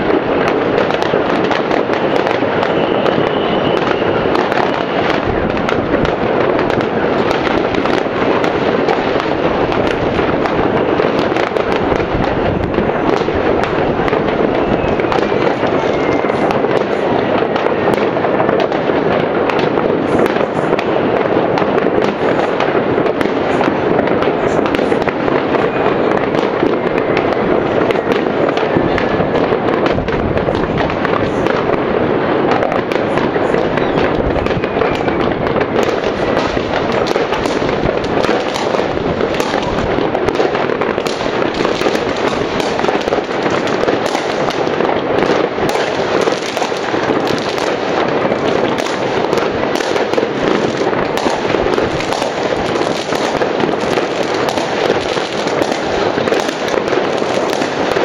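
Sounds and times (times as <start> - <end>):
fireworks and firecrackers banging: 0.0 - 58.0
firework whistles gliding down: 1.9 - 5.7, 14.1 - 16.9, 33.6 - 36.5.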